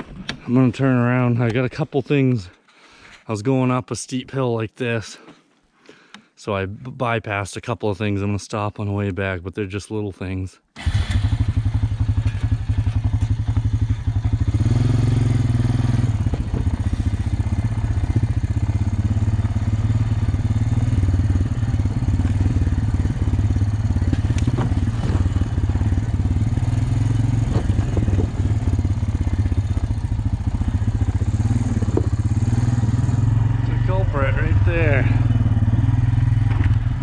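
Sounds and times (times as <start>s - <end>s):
atv engine running: 10.8s - 37.0s.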